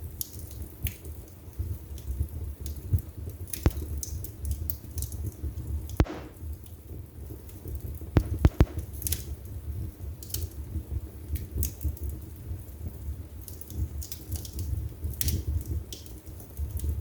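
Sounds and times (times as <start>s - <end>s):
fire crackling: 0.0s - 17.0s
low rumble of flame: 0.0s - 17.0s
sharp pops of fire: 3.5s - 12.2s, 13.4s - 17.0s.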